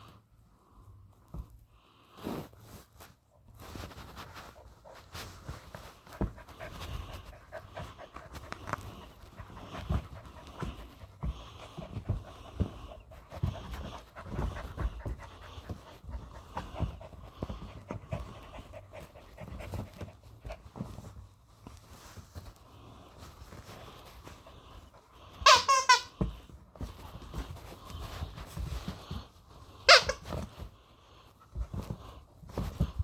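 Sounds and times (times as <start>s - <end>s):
puppy panting: 4.4s - 21.3s.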